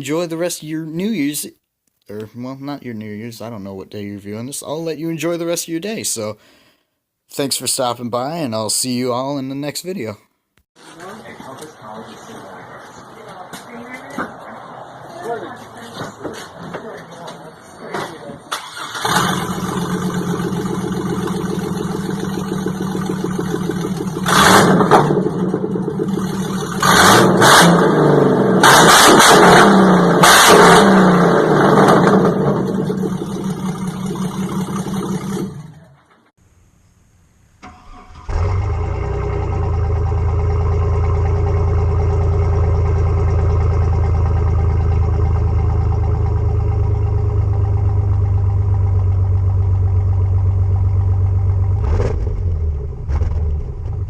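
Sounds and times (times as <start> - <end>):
engine revving: 18.5 - 36.0, 37.9 - 54.0
engine idling with deep rumble: 19.0 - 26.9, 32.1 - 36.0, 38.3 - 54.0.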